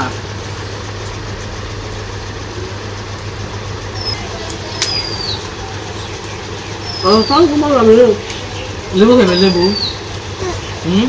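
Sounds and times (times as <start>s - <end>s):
low background hum: 0.0s - 11.0s
small bird chirping: 3.9s - 11.0s.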